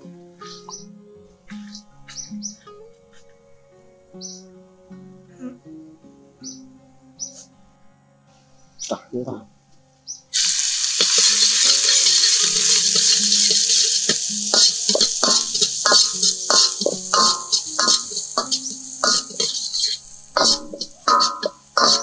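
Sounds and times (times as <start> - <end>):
garlic sizzling in hot oil: 10.3 - 22.0
spatula scraping a wok: 10.4 - 22.0.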